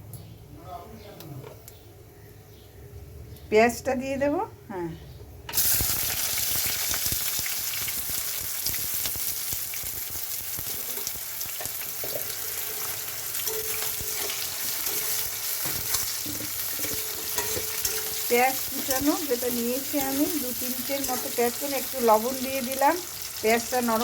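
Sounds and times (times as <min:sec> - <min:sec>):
onions sizzling in hot oil: 0:05.5 - 0:24.0.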